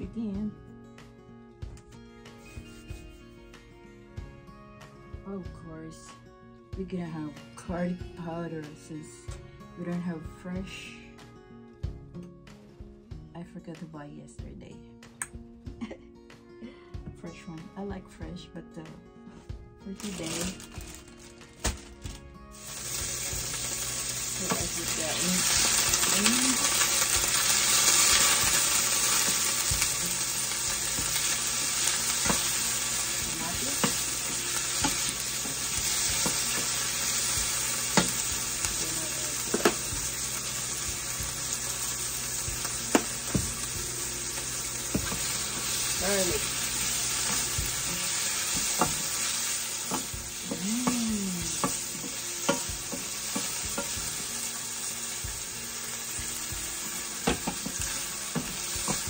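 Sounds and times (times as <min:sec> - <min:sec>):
tomatoes sizzling in a pot: 0:02.4 - 0:03.2, 0:19.8 - 0:59.0.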